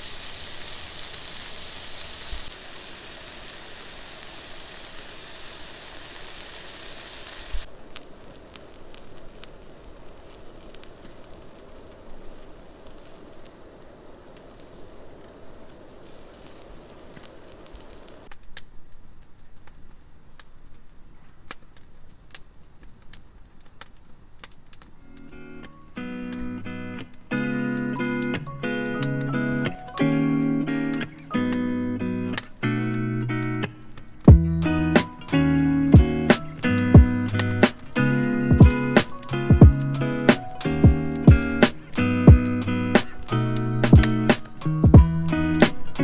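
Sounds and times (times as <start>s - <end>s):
sizzling and crackling: 0.0s - 46.0s
sharp pops: 32.3s - 46.0s.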